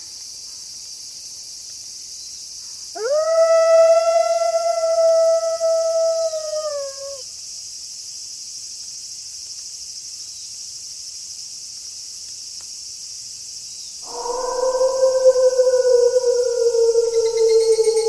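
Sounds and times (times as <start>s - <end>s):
night insects hissing: 0.0s - 18.0s
wolf howling: 3.0s - 7.2s, 14.1s - 18.0s.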